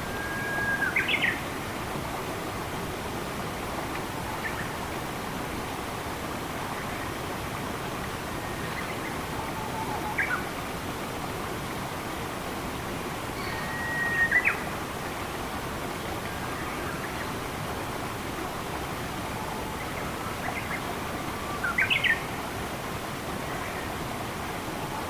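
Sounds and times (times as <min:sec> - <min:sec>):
water flowing: 0:00.0 - 0:25.0
bird whistling: 0:13.4 - 0:14.6.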